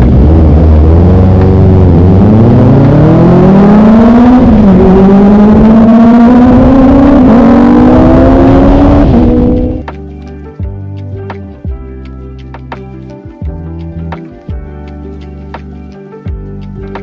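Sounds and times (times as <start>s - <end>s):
motorcycle engine accelerating: 0.0s - 9.9s.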